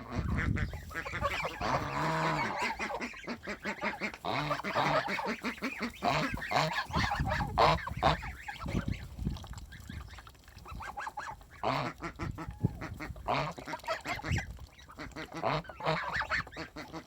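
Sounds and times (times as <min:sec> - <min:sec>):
ducks calling: 0:00.0 - 0:17.0.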